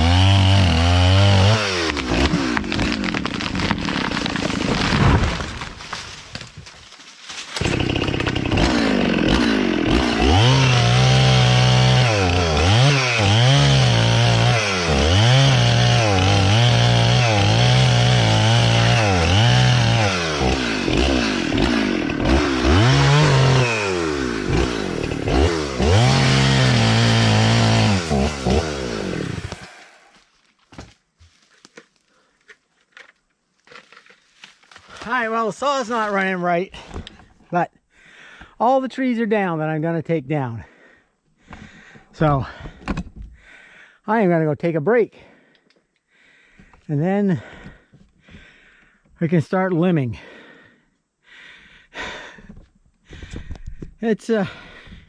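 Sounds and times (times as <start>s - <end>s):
chainsaw revving: 0.0s - 5.4s, 7.6s - 30.1s.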